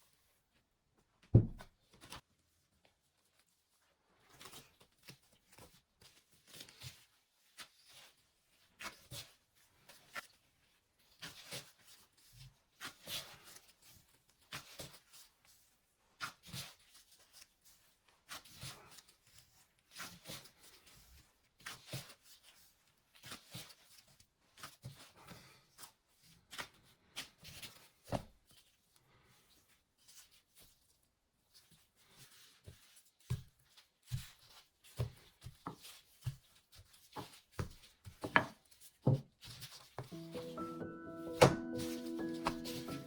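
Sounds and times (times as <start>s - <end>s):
soft knocks and taps: 1.2s - 1.7s
dull thuds: 1.3s - 1.7s.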